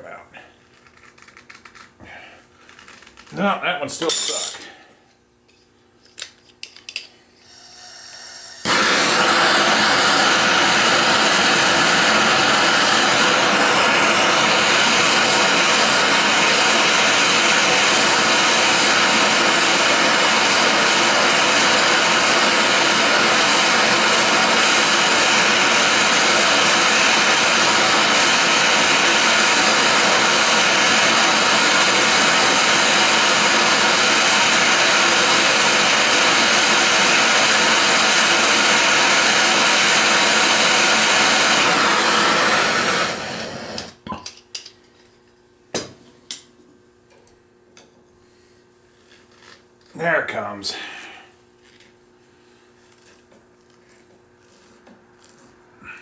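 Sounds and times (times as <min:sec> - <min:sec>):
gas torch hissing: 0:07.5 - 0:44.0.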